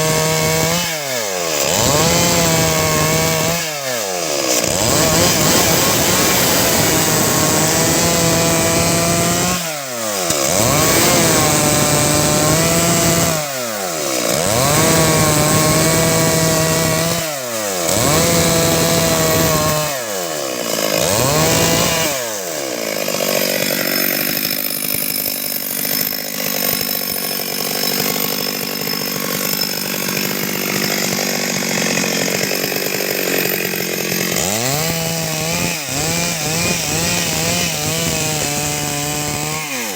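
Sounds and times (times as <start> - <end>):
chainsaw cutting through wood: 0.0 - 39.9.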